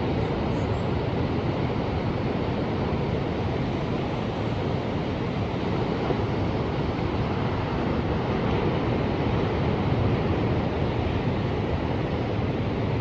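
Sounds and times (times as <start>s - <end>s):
ocean surf rushing: 0.0s - 13.0s.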